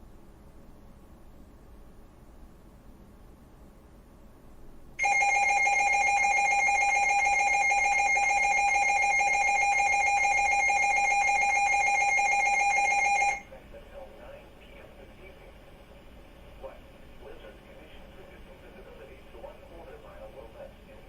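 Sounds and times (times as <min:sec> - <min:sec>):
loud steady alert tone: 0:05.0 - 0:13.5.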